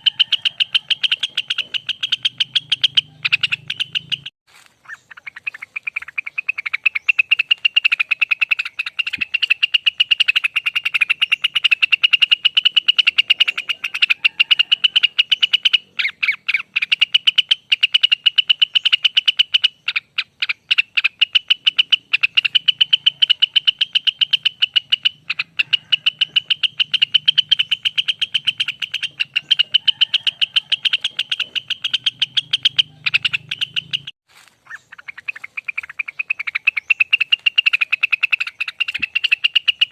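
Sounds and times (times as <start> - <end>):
bird rattling song: 0.0 - 39.9.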